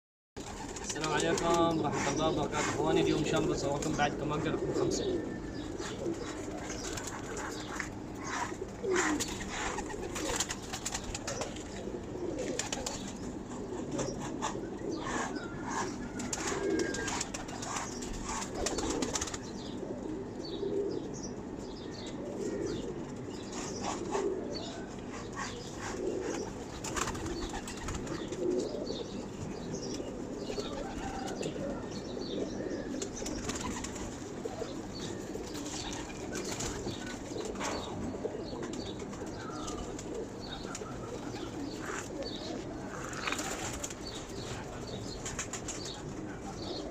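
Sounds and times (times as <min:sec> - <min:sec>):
wings fluttering: 0:00.4 - 0:04.5, 0:05.8 - 0:14.5, 0:15.6 - 0:19.6, 0:25.7 - 0:28.6, 0:30.4 - 0:31.5, 0:32.9 - 0:38.0, 0:38.6 - 0:46.5
pigeons cooing: 0:00.4 - 0:46.9.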